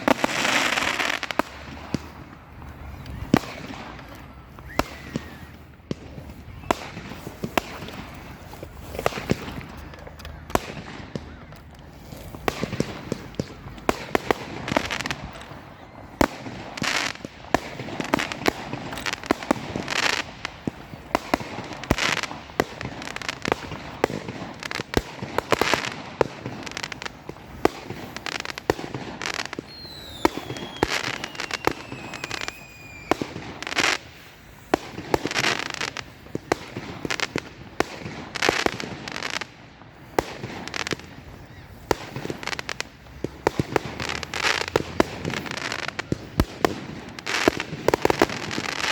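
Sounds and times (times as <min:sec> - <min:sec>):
fireworks bangs and crackling: 0:00.0 - 0:48.9
firework falling whistle: 0:04.6 - 0:05.7, 0:29.4 - 0:34.0.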